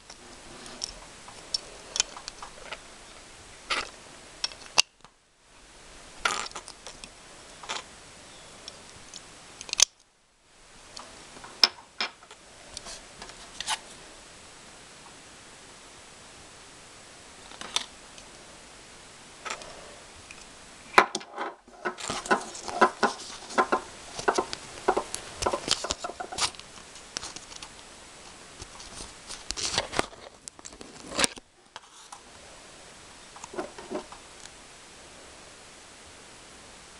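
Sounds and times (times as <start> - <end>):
plastic toy parts clicking: 9.1 - 10.0.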